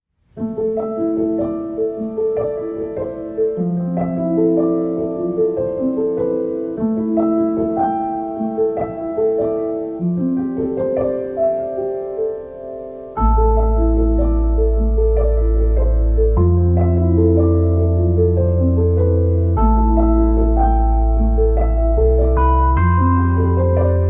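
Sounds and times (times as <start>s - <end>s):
piano melody: 0.3s - 24.0s.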